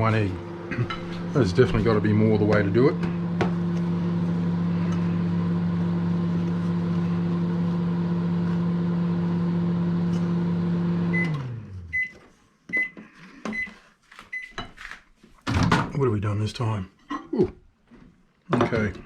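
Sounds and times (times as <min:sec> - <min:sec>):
microwave oven humming: 0:00.0 - 0:12.2.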